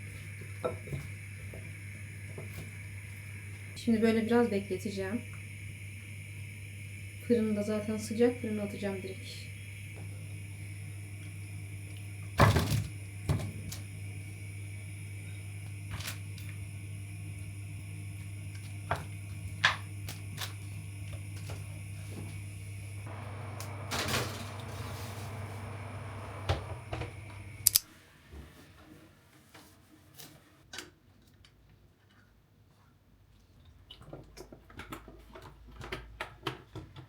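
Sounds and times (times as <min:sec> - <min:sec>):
steady electric hum: 0:00.0 - 0:27.9
clicks: 0:23.1 - 0:27.9.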